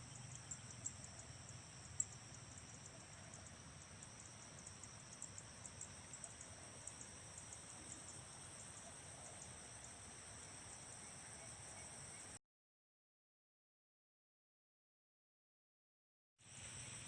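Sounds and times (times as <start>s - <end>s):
frogs and insects chorus: 0.0s - 12.4s.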